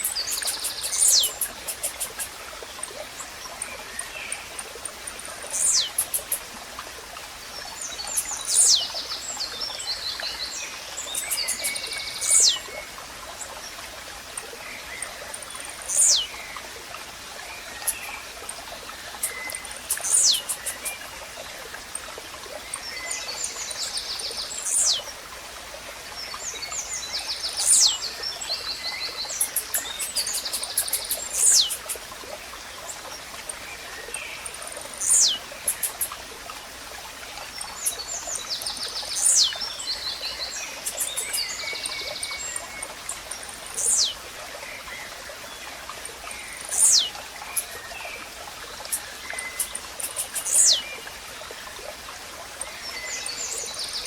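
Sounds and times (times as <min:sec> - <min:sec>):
high bird trills: 0:00.0 - 0:02.3, 0:35.0 - 0:36.1
stream running: 0:00.0 - 0:54.0.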